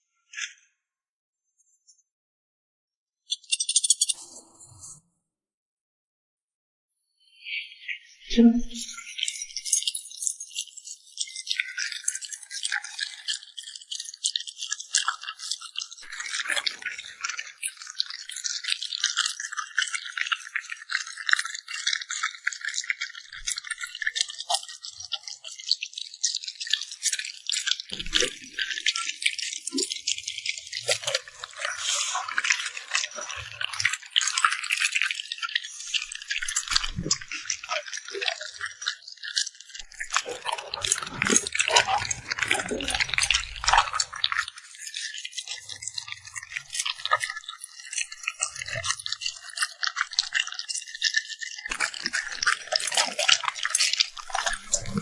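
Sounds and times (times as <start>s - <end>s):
dog chewing and crunching: 39.3s - 55.0s.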